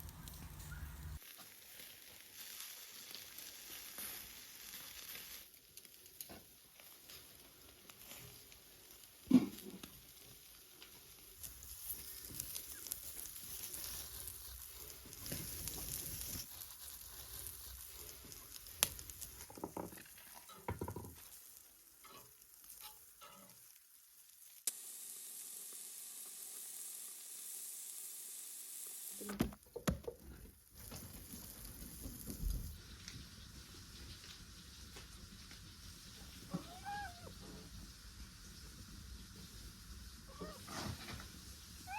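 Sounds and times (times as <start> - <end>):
steady hiss: 0.0 - 29.4, 30.6 - 41.9.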